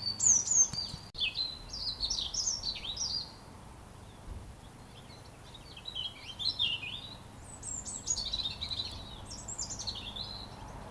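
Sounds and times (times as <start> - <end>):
robin singing: 0.0 - 3.4, 4.1 - 10.9.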